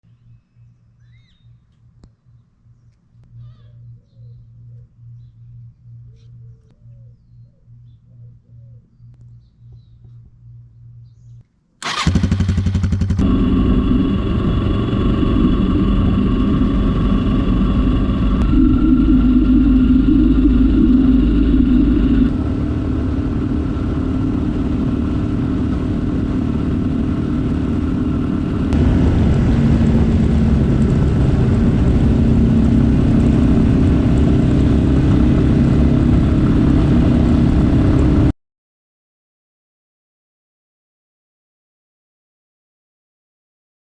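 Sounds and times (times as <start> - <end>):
motorcycle engine running: 9.3 - 38.3
motorcycle engine cranking: 11.8 - 13.5.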